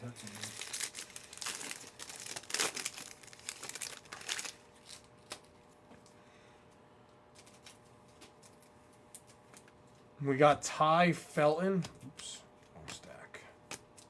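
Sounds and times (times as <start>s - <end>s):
foil wrapper tearing and crinkling: 0.0s - 5.5s
cards rustling: 0.1s - 5.5s.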